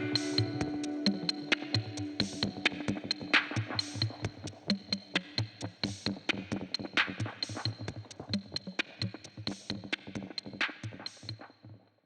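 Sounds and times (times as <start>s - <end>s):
synthesizer: 0.0s - 7.7s
drum machine pattern: 0.0s - 11.5s.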